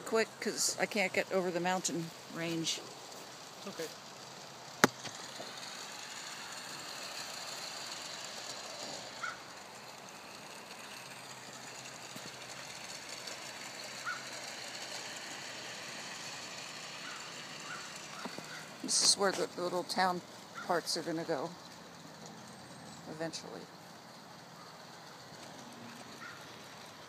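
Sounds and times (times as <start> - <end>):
model train motor whirring: 0.0 - 27.0
train wheel noise: 0.0 - 27.0.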